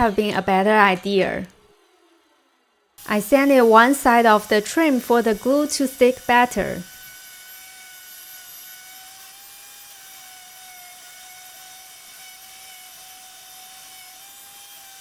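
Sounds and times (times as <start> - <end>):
electric sander whine: 3.0 - 15.0.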